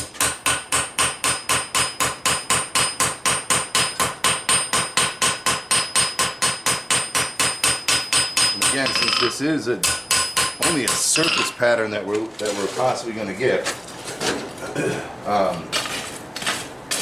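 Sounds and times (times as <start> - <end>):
hammer striking steel on anvil: 0.0 - 11.6.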